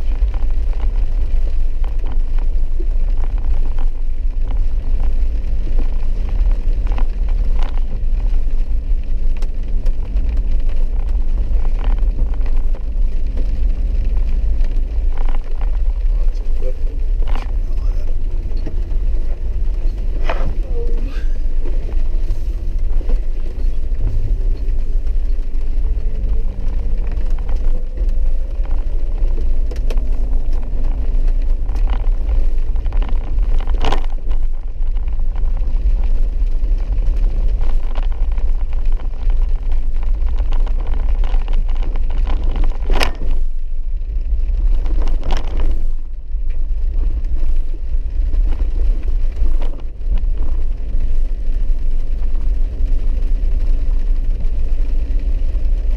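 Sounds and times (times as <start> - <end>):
vehicle engine rumble: 0.0 - 55.9.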